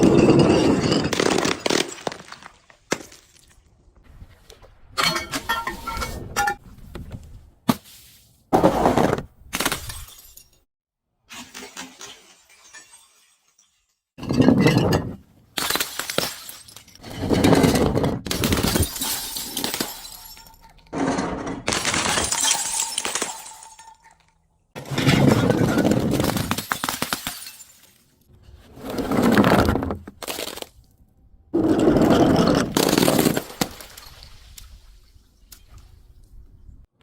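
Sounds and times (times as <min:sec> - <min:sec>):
glass bottles smashing: 0:00.0 - 0:03.5, 0:09.7 - 0:10.6, 0:11.3 - 0:28.1.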